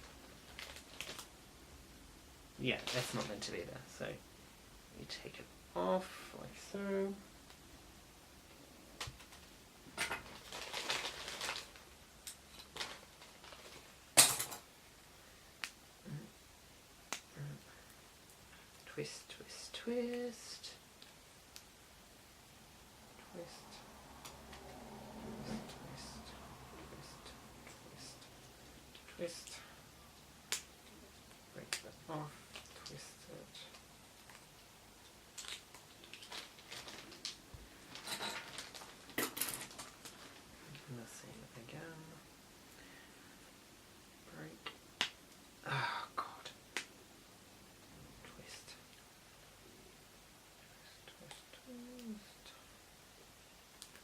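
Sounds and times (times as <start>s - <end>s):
plastic rustle: 0.0s - 1.4s, 2.8s - 3.5s, 9.0s - 14.0s, 35.3s - 40.8s.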